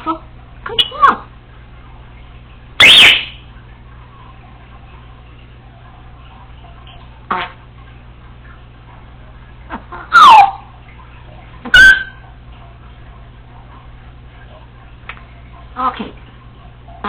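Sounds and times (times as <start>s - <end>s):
parrot calling: 2.8s - 3.4s, 9.7s - 10.8s, 11.6s - 12.3s
parrot whistle gliding down: 2.8s - 3.4s, 11.7s - 12.2s.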